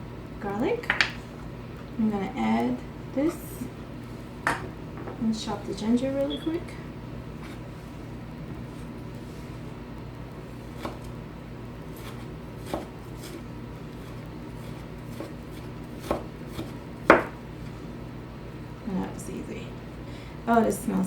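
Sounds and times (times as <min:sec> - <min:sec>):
knife chopping on cutting board: 0:10.7 - 0:11.2, 0:11.9 - 0:17.4.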